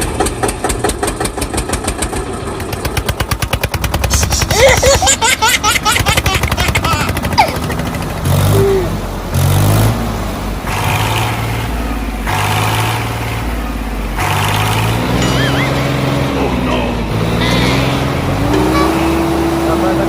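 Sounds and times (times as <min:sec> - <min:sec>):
small motor rattling: 0:00.0 - 0:08.6, 0:14.2 - 0:16.0
low motor hum: 0:00.0 - 0:20.0.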